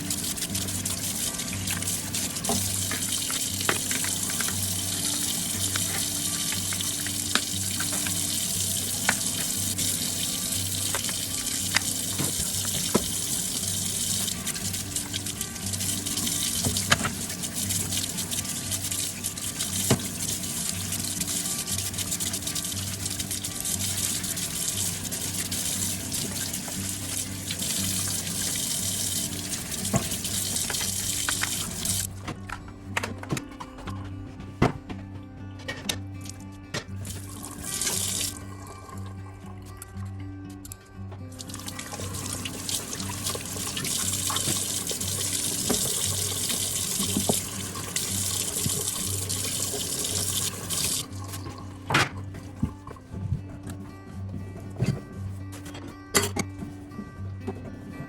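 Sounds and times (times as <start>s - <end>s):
water running from a tap: 0.0s - 32.1s, 37.0s - 39.2s, 41.3s - 53.0s
faint background music: 0.0s - 58.0s.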